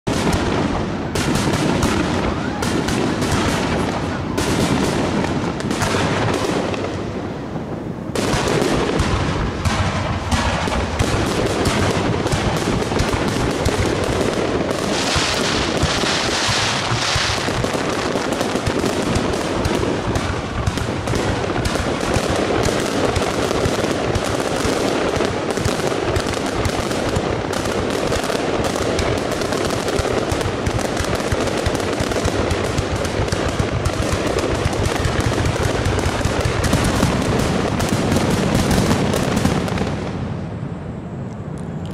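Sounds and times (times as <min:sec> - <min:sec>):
fireworks bursting and crackling: 0:00.0 - 0:41.9
hissing crackle of fireworks: 0:00.0 - 0:41.9.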